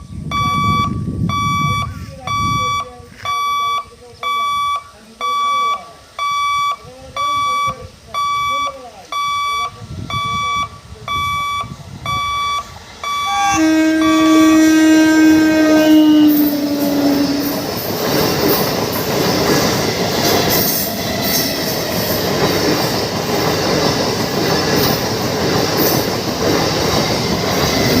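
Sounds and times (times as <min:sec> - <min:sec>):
train wheels rumbling on rails: 0:09.7 - 0:28.0
train horn: 0:13.1 - 0:17.9.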